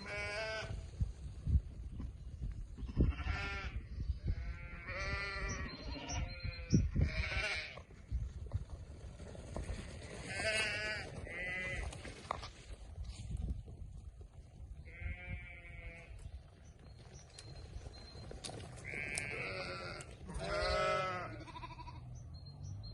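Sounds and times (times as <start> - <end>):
sheep bleating: 0.0 - 0.8, 2.9 - 3.8, 4.4 - 7.8, 10.3 - 11.9, 14.9 - 16.2, 18.8 - 22.0.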